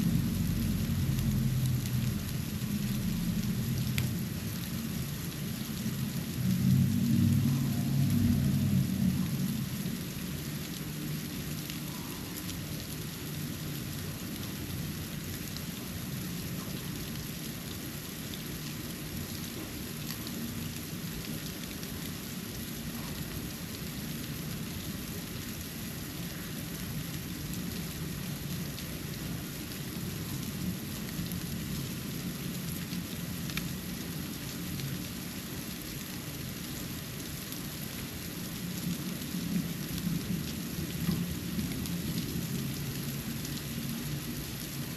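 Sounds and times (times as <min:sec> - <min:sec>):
low rumble: 0:00.0 - 0:04.4, 0:06.4 - 0:10.0
soft hiss of falling snow: 0:00.0 - 0:44.9.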